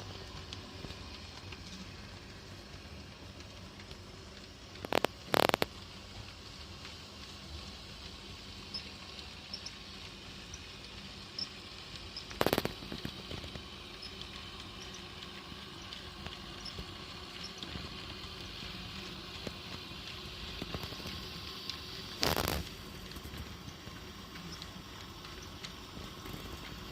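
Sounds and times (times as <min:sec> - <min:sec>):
sharp clicks: 0:12.3 - 0:13.2.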